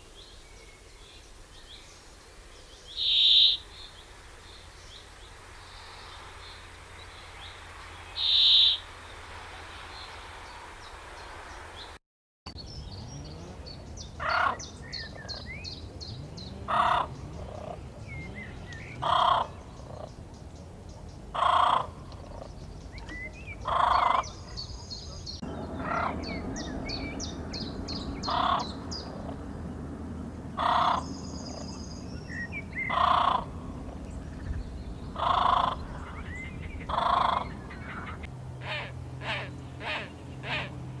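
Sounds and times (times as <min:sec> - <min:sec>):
small birds chirping: 0:00.0 - 0:29.8, 0:30.6 - 0:41.0
loud bird call: 0:02.9 - 0:04.0, 0:05.7 - 0:09.2, 0:25.2 - 0:29.1, 0:35.2 - 0:40.8.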